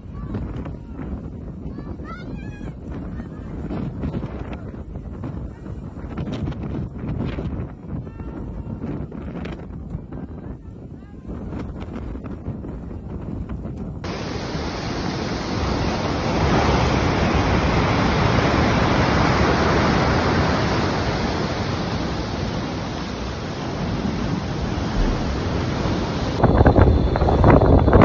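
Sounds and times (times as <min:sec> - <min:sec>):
wind buffeting microphone: 0:00.0 - 0:28.0
storm wind roaring: 0:14.0 - 0:28.0.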